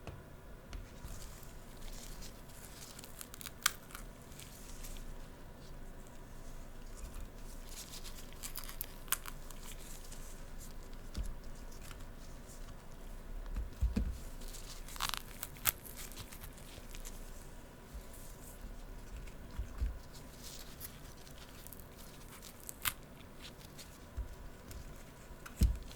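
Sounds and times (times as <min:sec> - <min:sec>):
crinkling and crackling clicks: 0:00.7 - 0:05.3, 0:06.8 - 0:25.9
soft low thump: 0:25.6 - 0:25.9.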